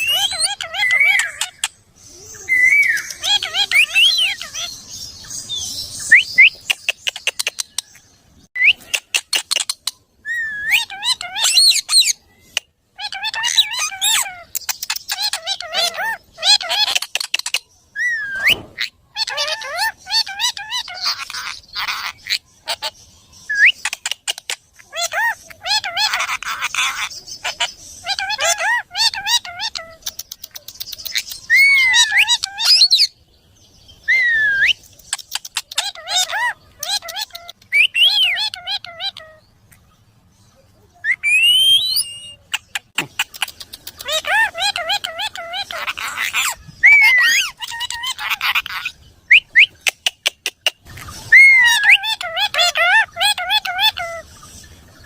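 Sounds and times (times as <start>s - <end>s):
parrot whistling and chirping: 0.0s - 1.7s, 2.4s - 4.7s, 6.0s - 7.9s, 8.6s - 12.2s, 18.0s - 22.8s, 23.5s - 24.2s, 24.9s - 33.1s, 34.0s - 39.4s, 41.0s - 50.0s, 51.2s - 54.2s
parrot chirping clicking and whistling: 6.1s - 8.0s, 29.6s - 33.0s, 34.6s - 39.3s, 41.1s - 50.8s.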